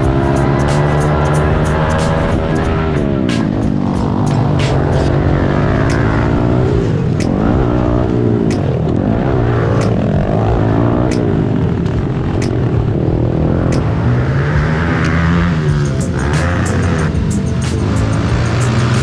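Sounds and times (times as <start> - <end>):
pit bike engines revving: 0.0 - 19.0.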